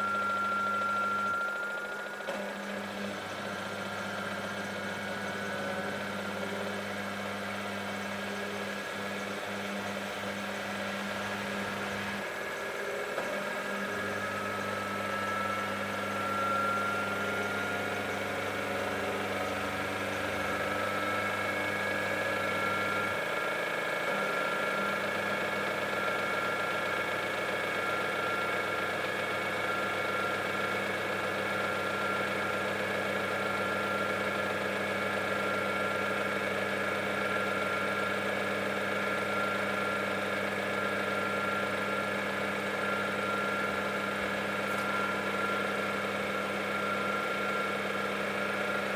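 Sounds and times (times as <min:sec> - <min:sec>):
washing machine motor hum and whine: 0:00.0 - 0:48.9.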